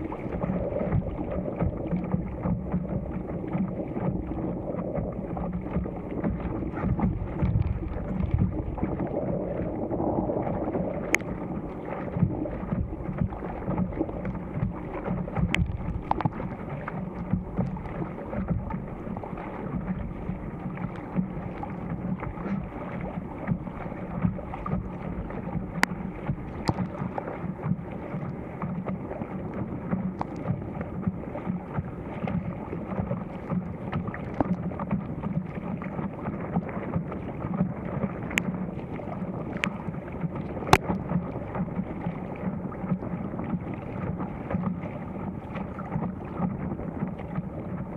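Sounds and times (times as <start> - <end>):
wind buffeting microphone: 0.0 - 27.6
water splashing against paddle board: 0.0 - 47.9.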